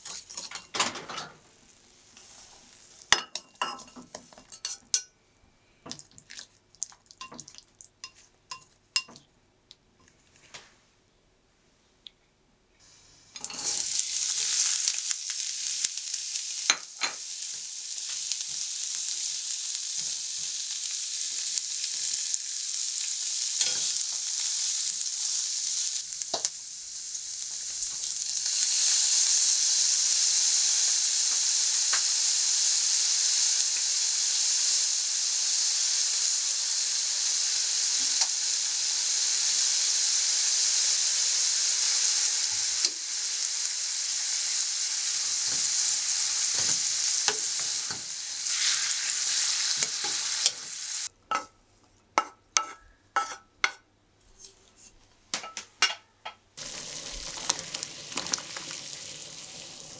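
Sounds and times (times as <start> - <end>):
vegetables sizzling in oil: 1.6 - 5.1, 12.8 - 51.1, 56.6 - 59.9.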